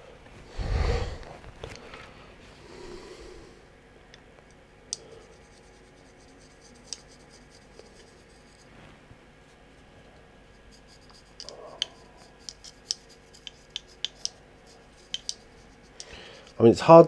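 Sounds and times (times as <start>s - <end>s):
paintbrush bristles scratching: 5.2s - 9.6s, 10.4s - 17.0s.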